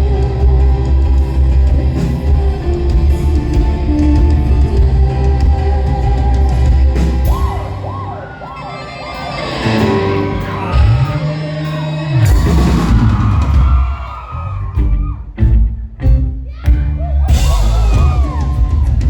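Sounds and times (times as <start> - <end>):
rock band playing live: 0.0 - 19.0
singer's wailing vocal whoops: 7.3 - 15.2.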